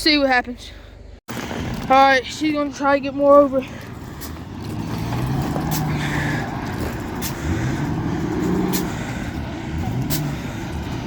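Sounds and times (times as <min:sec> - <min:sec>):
car engine revving in surges: 0:03.8 - 0:11.0.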